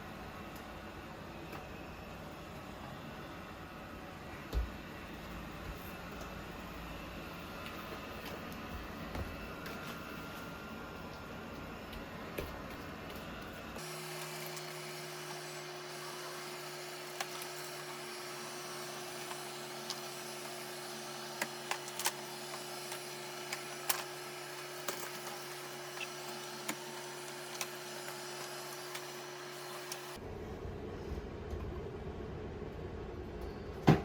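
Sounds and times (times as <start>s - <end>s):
robot vacuum motor hum: 13.8s - 30.2s.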